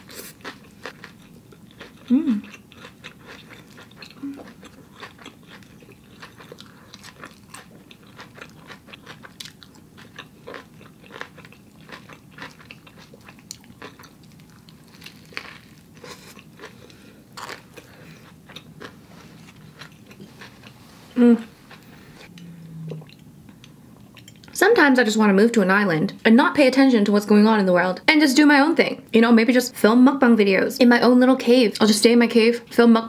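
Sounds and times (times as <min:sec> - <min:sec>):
person chewing food: 0:00.0 - 0:24.6.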